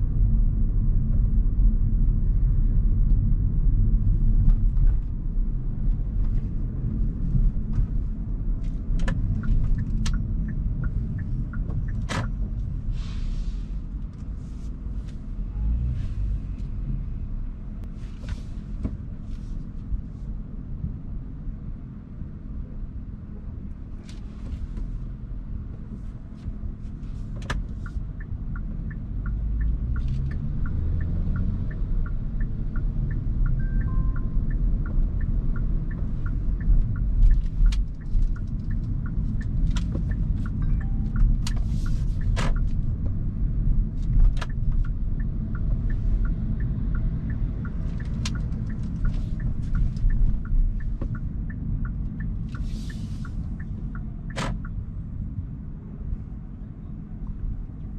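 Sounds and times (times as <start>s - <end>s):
road and tyre noise in car: 0.0s - 57.9s
light regular ticking: 27.6s - 54.8s.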